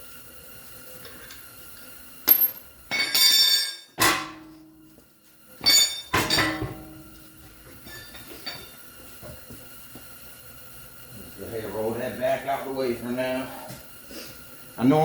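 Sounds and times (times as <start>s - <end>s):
metal tools clinking: 2.3s - 3.9s, 5.6s - 6.7s, 7.8s - 8.8s.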